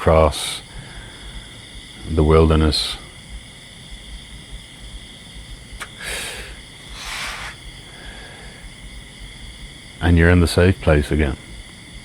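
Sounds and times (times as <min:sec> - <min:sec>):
insects shrilling: 0:00.0 - 0:12.0
short hissing rushes: 0:05.7 - 0:08.7.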